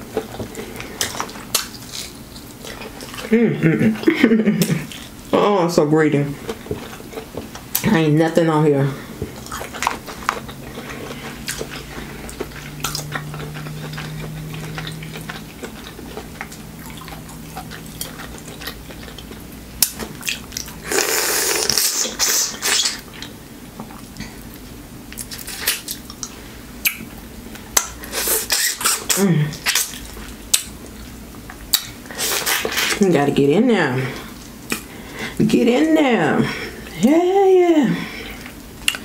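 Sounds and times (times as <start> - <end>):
person chewing with wet mouth clicks: 9.2 - 22.0, 22.6 - 32.8, 38.4 - 39.0.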